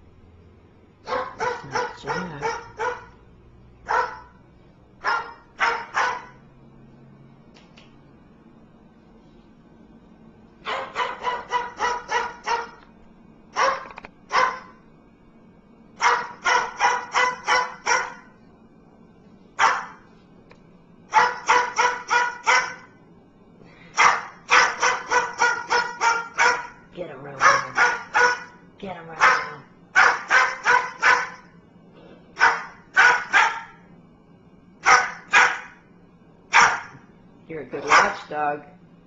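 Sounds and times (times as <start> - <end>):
bird mimicking dog barks: 1.1 - 3.2.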